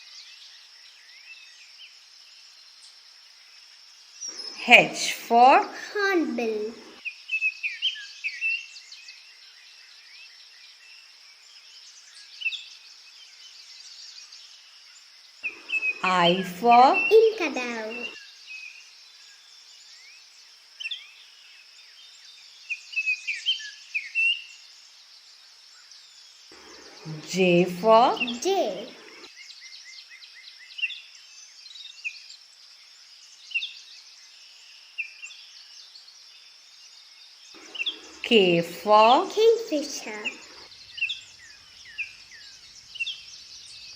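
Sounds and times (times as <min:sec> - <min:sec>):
high background hiss: 0:00.0 - 0:43.9
small birds chirping: 0:00.0 - 0:43.9
steady high hiss: 0:15.4 - 0:18.1, 0:26.6 - 0:29.3, 0:37.6 - 0:43.9.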